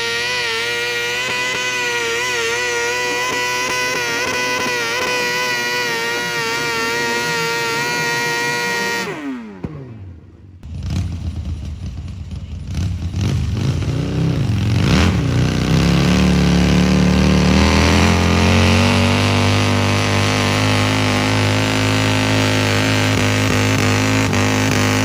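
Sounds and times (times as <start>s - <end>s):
tractor engine revving: 0.0s - 25.0s.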